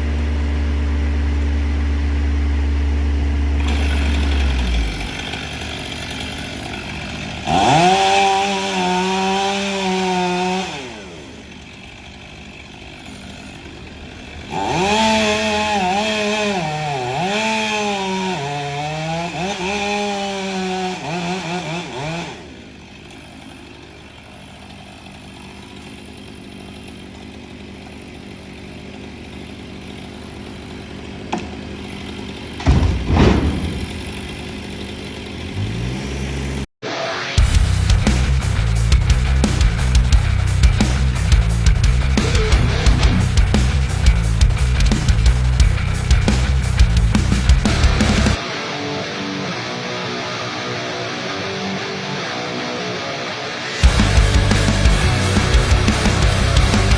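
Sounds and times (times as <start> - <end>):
loud low engine drone: 0.0 - 9.5, 29.9 - 36.7, 37.4 - 48.4, 53.6 - 56.9
chainsaw cutting logs: 0.0 - 48.4, 52.3 - 56.9.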